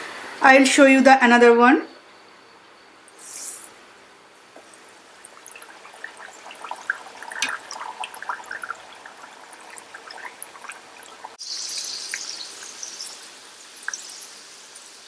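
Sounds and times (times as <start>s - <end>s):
oil bubbling and crackling: 3.0s - 15.0s.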